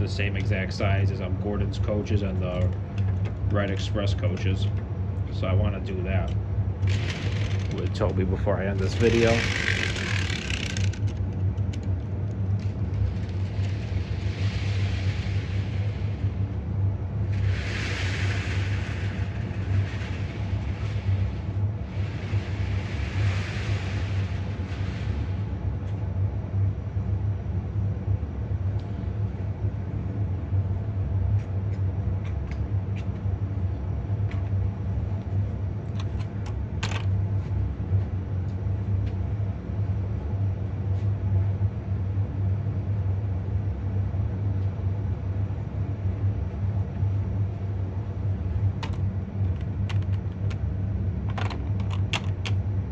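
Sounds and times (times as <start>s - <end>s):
model train motor hum: 5.6s - 11.9s, 12.5s - 25.5s
hiss: 13.7s - 16.4s, 17.2s - 25.5s.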